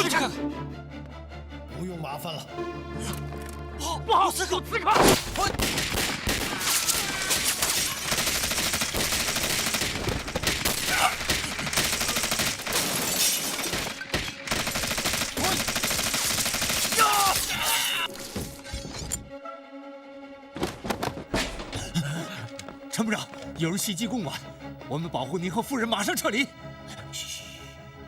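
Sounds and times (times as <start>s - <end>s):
rapid gunfire: 5.0s - 17.5s
people crying and shouting: 6.4s - 8.2s, 10.8s - 12.4s, 16.8s - 18.1s.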